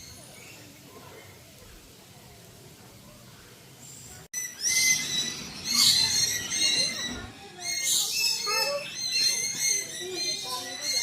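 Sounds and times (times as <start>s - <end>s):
birds chirping and whistling: 4.4s - 11.0s
lower gliding bird calls: 4.4s - 11.0s.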